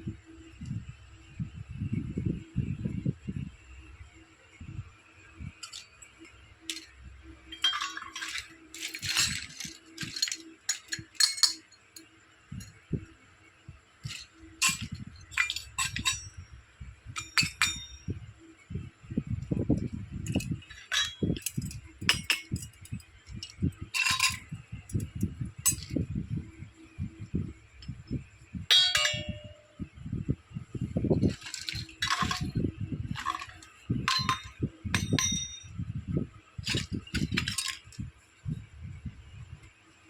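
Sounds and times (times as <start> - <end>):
light toy clinks: 14.0 - 16.5, 19.7 - 26.0, 28.7 - 29.8, 31.2 - 35.8.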